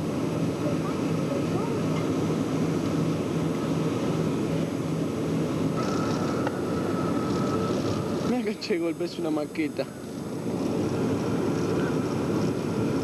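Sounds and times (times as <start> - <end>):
jet engine roar in cabin: 0.0 - 13.0
faint high steady tone: 5.8 - 10.1.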